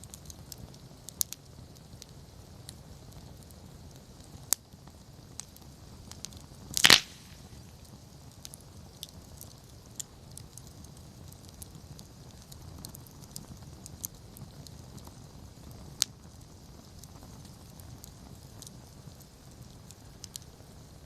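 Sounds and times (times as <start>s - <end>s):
campfire crackling: 0.0s - 21.0s
low rumble of flames: 0.0s - 21.0s
loud sharp wood crack: 6.8s - 7.7s.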